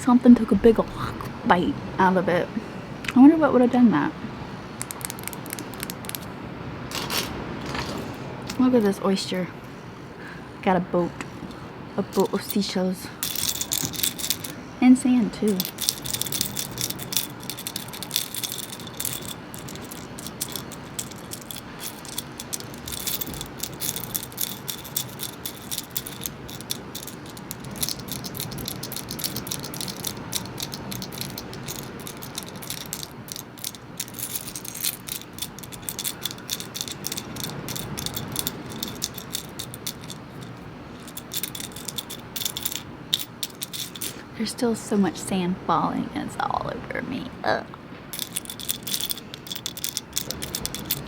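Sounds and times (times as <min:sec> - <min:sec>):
seashells rattling and clinking: 0:04.8 - 0:06.3, 0:12.1 - 0:14.7, 0:15.4 - 0:44.3, 0:48.1 - 0:51.0.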